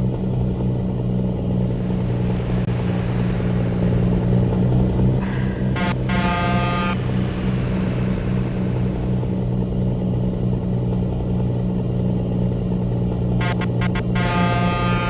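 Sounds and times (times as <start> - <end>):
truck engine droning: 0.0 - 15.0
brief pitched tone: 5.2 - 9.4, 13.4 - 15.0.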